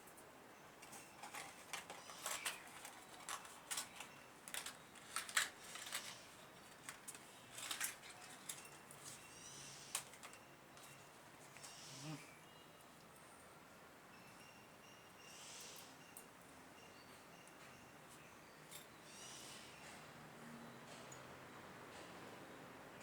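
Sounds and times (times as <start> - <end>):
metal parts clicking and scraping: 0.8 - 9.2.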